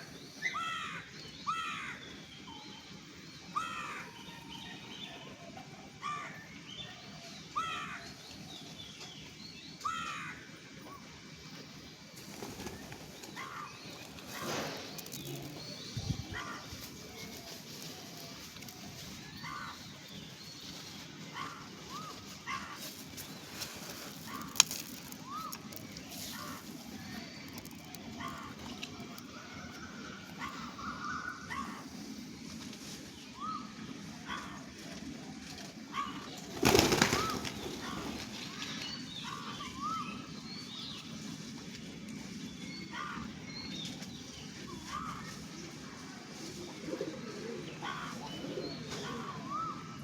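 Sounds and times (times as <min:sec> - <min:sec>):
small birds chirping: 0:00.0 - 0:34.8, 0:35.4 - 0:50.0
wings fluttering: 0:12.2 - 0:19.8, 0:21.4 - 0:29.2, 0:35.8 - 0:39.6.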